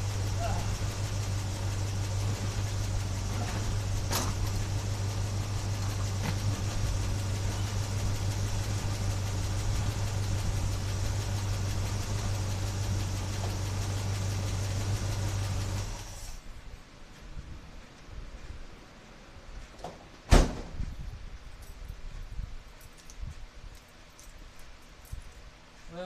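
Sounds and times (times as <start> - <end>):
car engine idling: 0.0 - 16.6.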